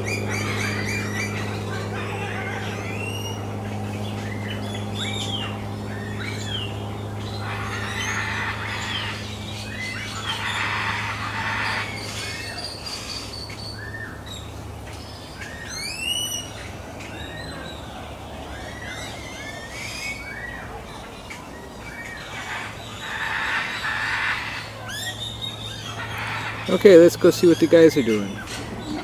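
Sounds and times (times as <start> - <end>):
birds chirping: 0.0 - 29.0
steady low hum: 0.0 - 29.0.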